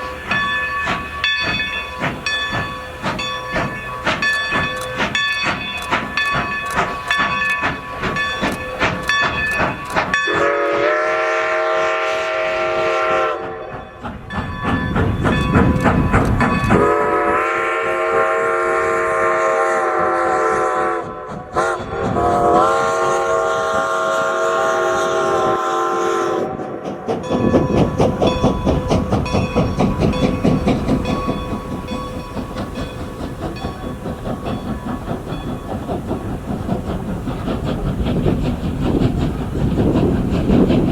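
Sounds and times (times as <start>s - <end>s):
rush of steam: 0.0s - 40.9s
steam locomotive whistle chord: 10.2s - 13.7s, 16.7s - 26.6s.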